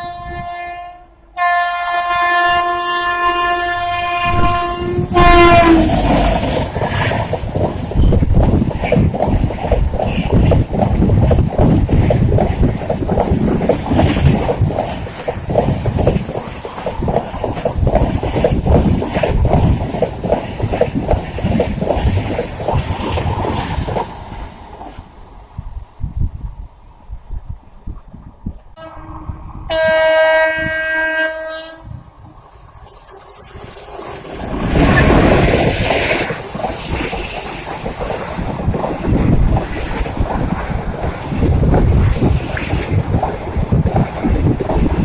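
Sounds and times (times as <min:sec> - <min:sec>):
locomotive horn blast: 0:00.0 - 0:06.6, 0:28.8 - 0:31.9
train rumble: 0:00.0 - 0:45.0
train wheels clattering on rails: 0:04.4 - 0:25.0, 0:32.4 - 0:45.0.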